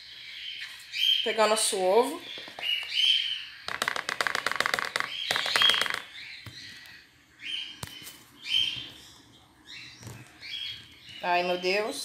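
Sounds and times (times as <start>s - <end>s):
caged birds chirping: 0.0s - 12.0s.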